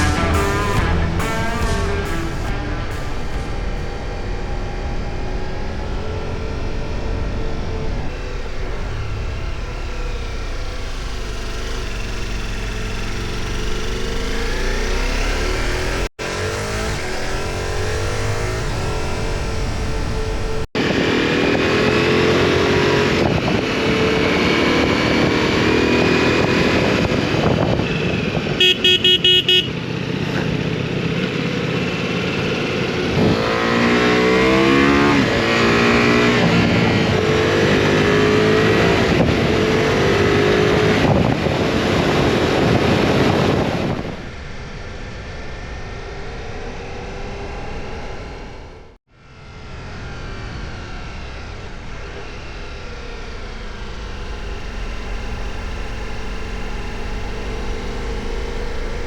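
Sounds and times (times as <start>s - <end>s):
horn tooting: 0.0s - 5.9s, 28.5s - 30.0s
motorcycle engine accelerating: 0.0s - 59.0s
wind noise: 32.8s - 46.0s.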